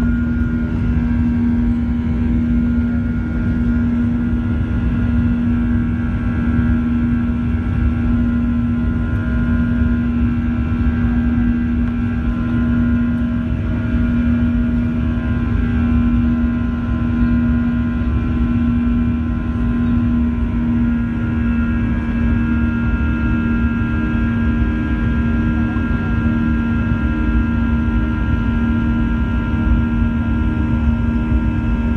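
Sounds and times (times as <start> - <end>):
jet engines drone in cabin: 0.0 - 31.9.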